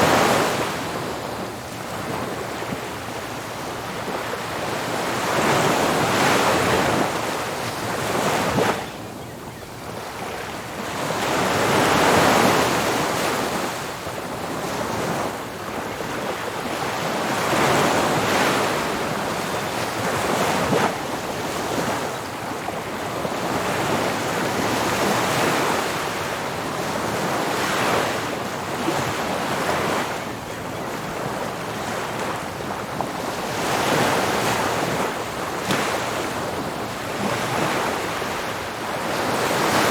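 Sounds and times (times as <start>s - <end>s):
ocean surf breaking on beach: 10.2s - 39.9s.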